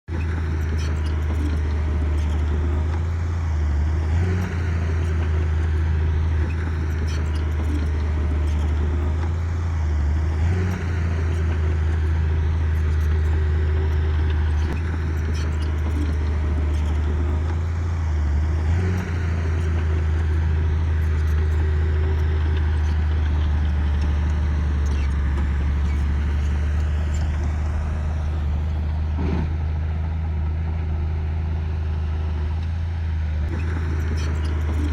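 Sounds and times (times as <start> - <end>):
diesel engine under load: 0.0 - 34.9
faint clicks and clanks: 0.1 - 9.5, 33.4 - 34.9.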